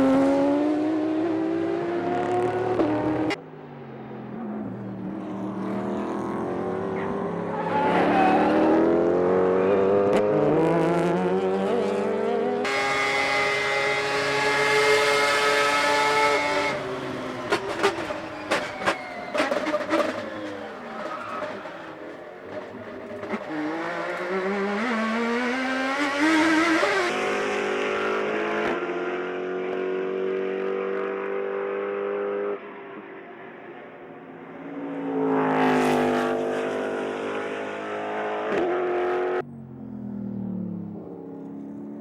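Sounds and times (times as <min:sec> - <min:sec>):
race car engines revving: 0:04.3 - 0:32.7.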